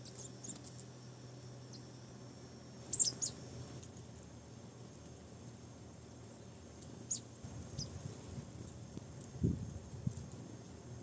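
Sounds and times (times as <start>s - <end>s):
marsh tit calls: 0.0s - 1.0s, 2.8s - 4.3s, 6.3s - 8.8s.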